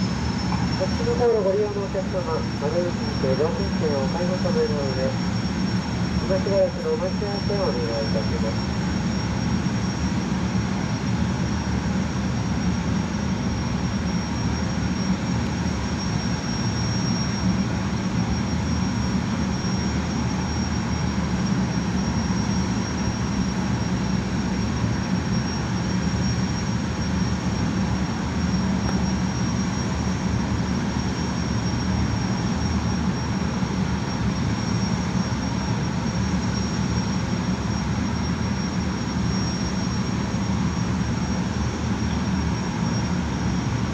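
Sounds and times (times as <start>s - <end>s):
gas turbines whining: 0.0s - 9.3s.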